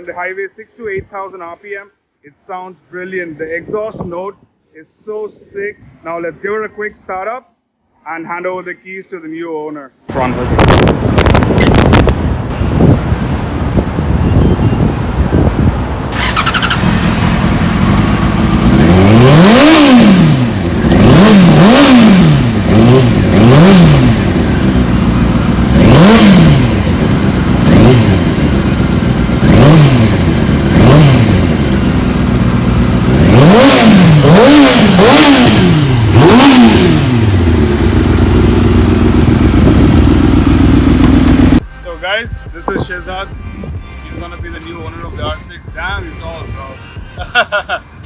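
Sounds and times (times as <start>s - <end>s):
motorcycle engine idling and revving: 12.5s - 41.6s.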